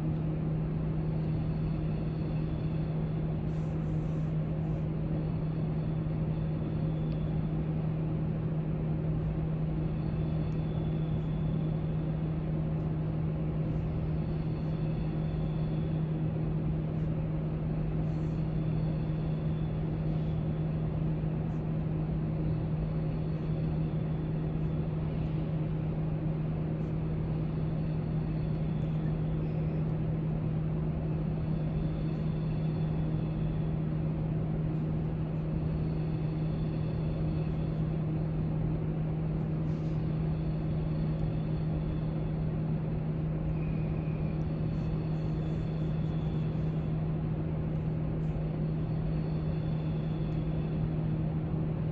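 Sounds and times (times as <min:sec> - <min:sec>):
ventilation hum: 0:00.0 - 0:51.9.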